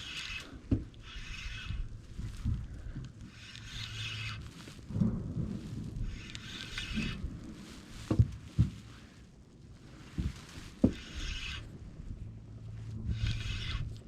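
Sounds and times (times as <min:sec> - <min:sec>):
fishing reel cranking: 0:00.0 - 0:01.9, 0:03.3 - 0:04.4, 0:11.0 - 0:11.6, 0:13.1 - 0:14.0.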